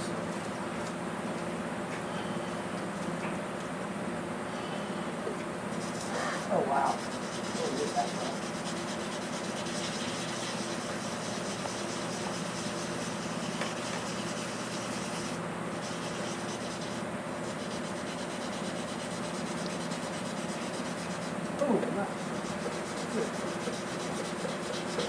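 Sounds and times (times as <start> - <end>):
sandpaper sanding metal: 5.7 - 21.5, 22.1 - 25.0.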